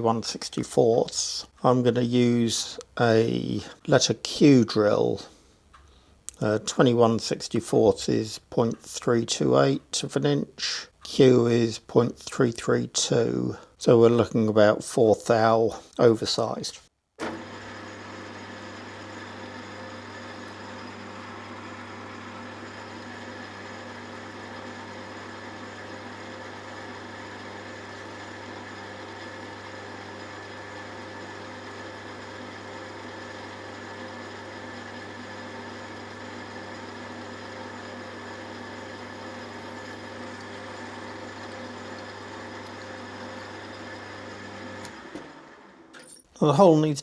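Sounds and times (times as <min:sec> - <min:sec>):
lathe motor and gear hum: 0:17.2 - 0:46.2.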